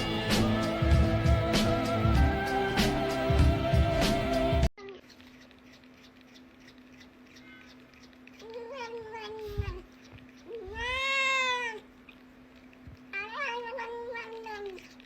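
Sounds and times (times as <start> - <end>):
cat meowing: 8.4 - 9.9, 10.5 - 11.9, 13.1 - 15.0.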